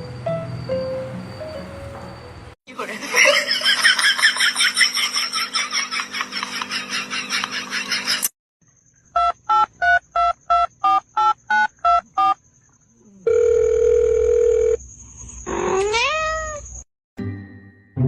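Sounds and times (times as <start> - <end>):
steady telephone tone: 13.3 - 14.8.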